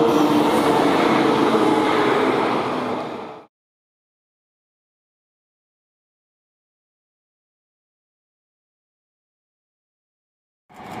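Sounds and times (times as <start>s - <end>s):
train at station platform: 0.0s - 3.5s, 10.7s - 11.0s.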